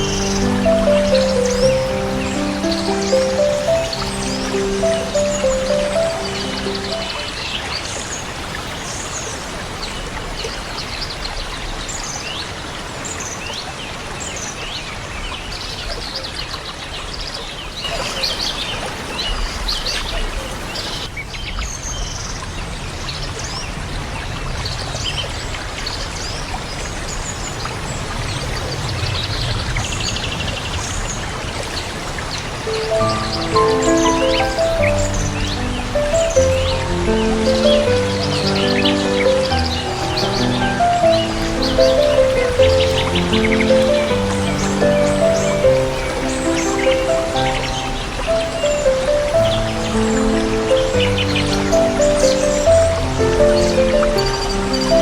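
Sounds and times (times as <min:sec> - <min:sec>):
soft music: 0:00.0 - 0:08.0, 0:32.6 - 0:55.0
small birds chirping: 0:00.0 - 0:08.3, 0:32.6 - 0:55.0
flowing water: 0:00.0 - 0:21.2, 0:22.4 - 0:55.0.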